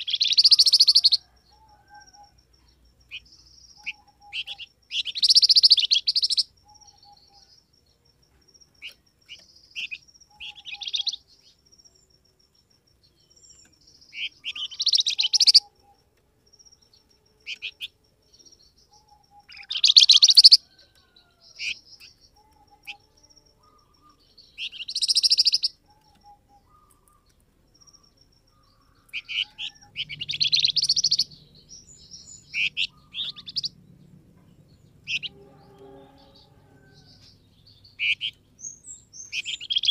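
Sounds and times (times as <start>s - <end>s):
bird chirping trills: 0.0s - 39.9s
single bird chirps: 17.4s - 33.8s, 34.4s - 39.9s.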